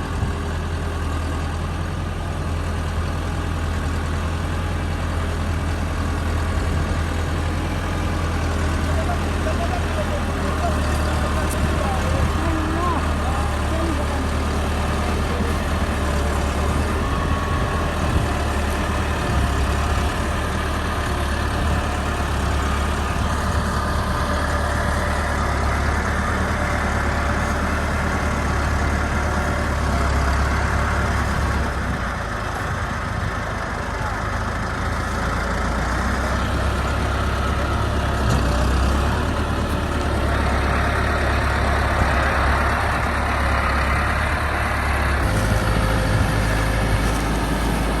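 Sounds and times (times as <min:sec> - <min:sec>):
tractor diesel engine running: 0:00.0 - 0:48.0.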